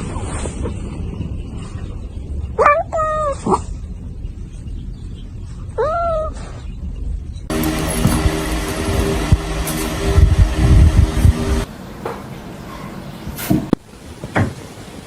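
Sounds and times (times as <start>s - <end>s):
low rumble: 7.2s - 11.7s
loud different noise: 7.5s - 11.7s.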